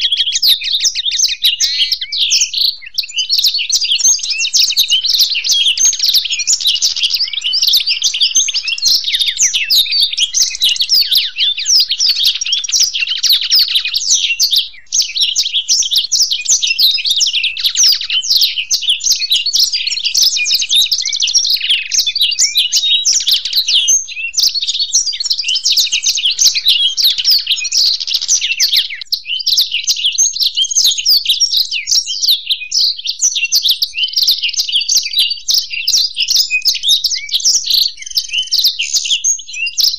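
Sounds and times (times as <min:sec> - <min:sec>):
birds twittering and trilling: 0:00.0 - 0:39.9.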